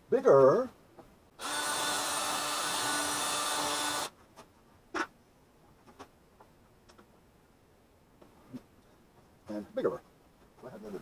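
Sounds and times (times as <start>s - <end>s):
power drill boring: 1.4s - 4.1s.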